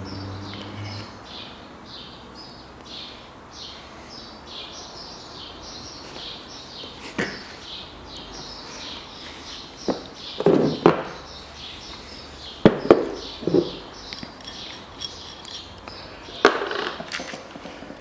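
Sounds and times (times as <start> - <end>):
birds chirping: 0.0 - 17.4
parts knocking and clattering: 9.8 - 11.3, 12.5 - 18.0.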